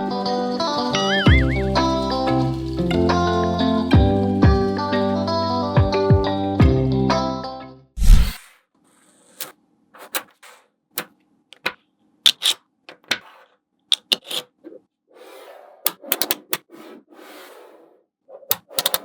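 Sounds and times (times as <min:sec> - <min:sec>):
background music: 0:00.0 - 0:07.9
magnetic balls clicking together: 0:15.9 - 0:16.6, 0:18.5 - 0:19.0.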